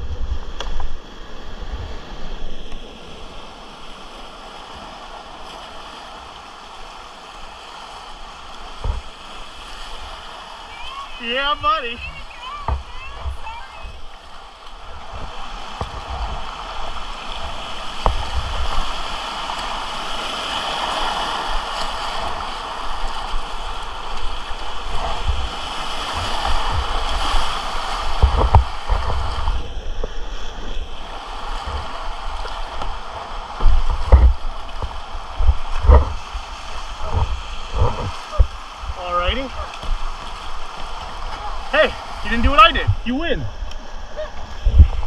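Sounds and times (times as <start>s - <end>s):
whitewater rapids rushing: 2.8s - 29.8s, 30.5s - 45.0s
low thumps and knocks: 12.6s - 13.4s, 28.1s - 30.2s, 33.6s - 36.2s, 37.0s - 39.0s, 44.6s - 45.0s.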